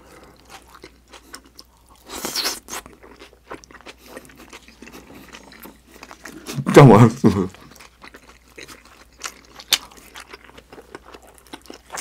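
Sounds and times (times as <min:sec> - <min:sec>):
mouth chewing clicks and squelches: 0:07.5 - 0:12.0.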